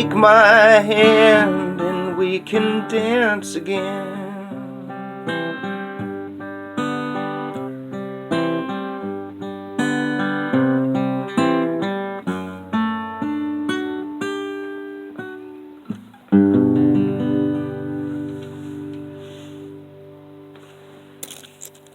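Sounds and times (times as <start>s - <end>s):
acoustic guitar chords: 0.0s - 21.9s.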